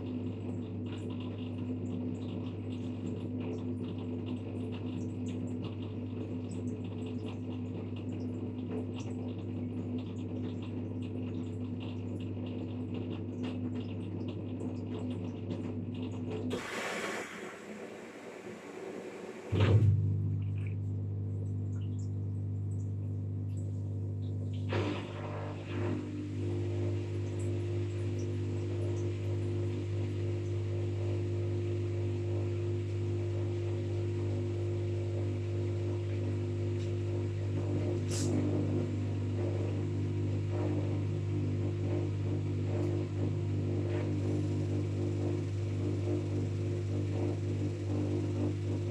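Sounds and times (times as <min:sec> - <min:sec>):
washing machine hum: 0:00.0 - 0:48.9
hiss: 0:16.5 - 0:19.6.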